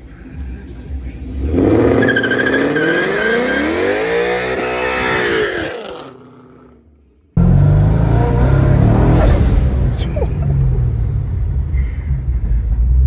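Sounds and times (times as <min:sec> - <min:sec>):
loud low engine rumble: 0:00.0 - 0:06.6, 0:07.4 - 0:13.0
car engine revving: 0:00.0 - 0:13.0
tyre squeal: 0:01.6 - 0:06.2.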